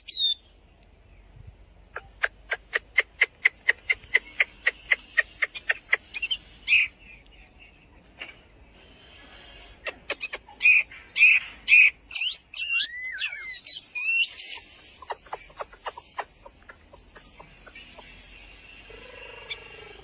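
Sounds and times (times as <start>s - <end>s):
bird singing whistled phrases: 12.1s - 14.3s.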